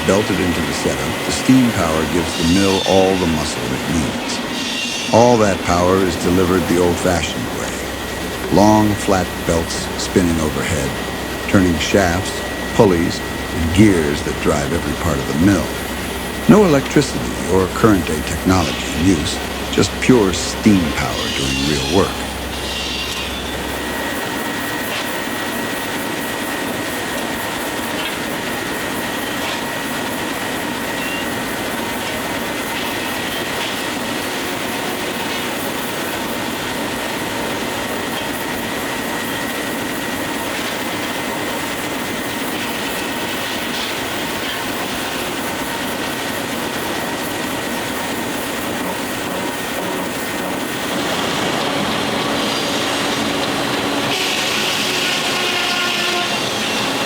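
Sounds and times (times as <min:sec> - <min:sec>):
sawmill machinery clattering: 0:00.0 - 0:24.2, 0:39.4 - 0:57.0
thin mechanical whine: 0:00.0 - 0:57.0.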